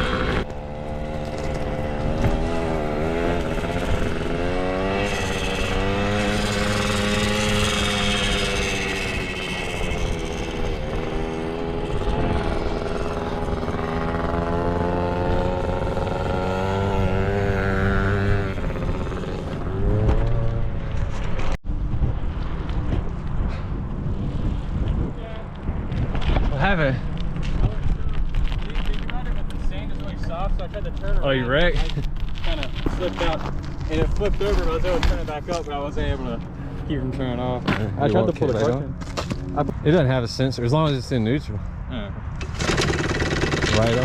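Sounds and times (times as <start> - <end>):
pit bike engine revving: 0.0 - 21.6, 42.4 - 44.0.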